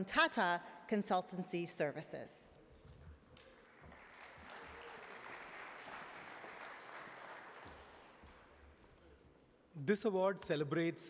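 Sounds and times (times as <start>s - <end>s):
faint audience applause: 3.3s - 9.0s.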